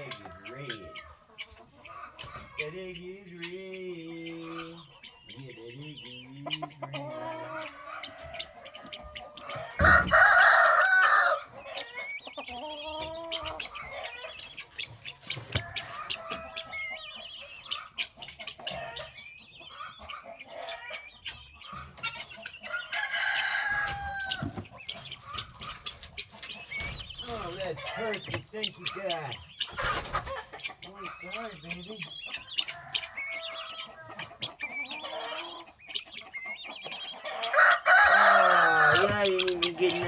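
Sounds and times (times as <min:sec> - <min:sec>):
chickens clucking: 0:00.0 - 0:40.0
rooster crowing: 0:09.6 - 0:11.5, 0:22.7 - 0:24.6, 0:37.3 - 0:39.2.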